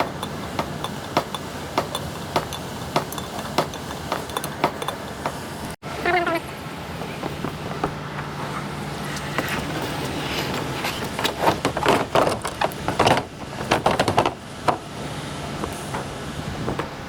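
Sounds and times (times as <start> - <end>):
sharp metallic knocks and clinks: 0.0 - 5.4.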